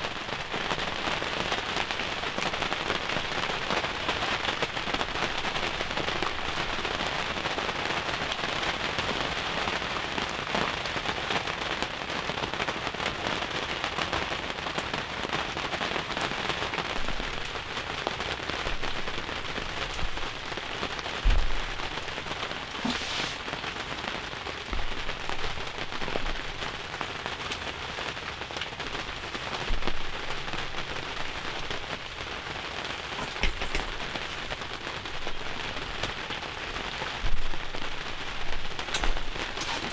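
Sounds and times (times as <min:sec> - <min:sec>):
heavy rain falling: 0:00.0 - 0:39.9
loud thumps: 0:21.2 - 0:23.1.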